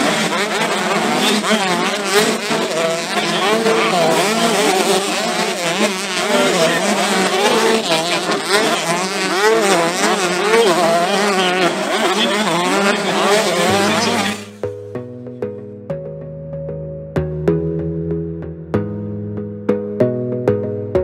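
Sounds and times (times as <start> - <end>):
motocross bikes racing: 0.0 - 14.7.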